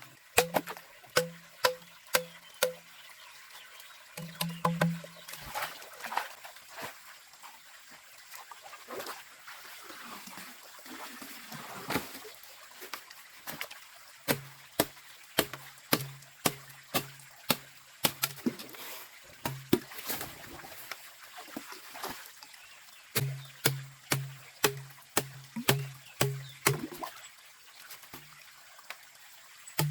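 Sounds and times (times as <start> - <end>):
water sloshing and splashing: 8.8 - 28.9
knife chopping knocks: 23.2 - 26.8.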